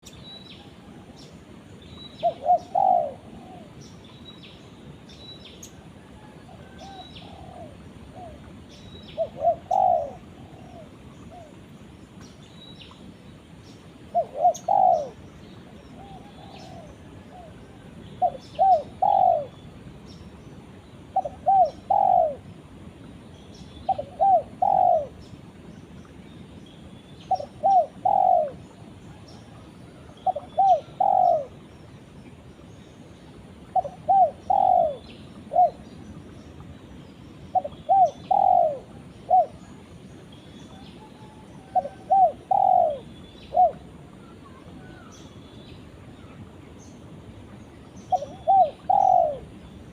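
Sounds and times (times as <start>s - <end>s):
dove cooing: 2.2s - 3.9s, 5.8s - 11.7s, 14.1s - 19.6s, 21.1s - 22.5s, 23.9s - 25.2s, 27.3s - 31.6s, 33.7s - 36.0s, 37.5s - 40.0s, 40.7s - 45.1s, 48.0s - 49.7s.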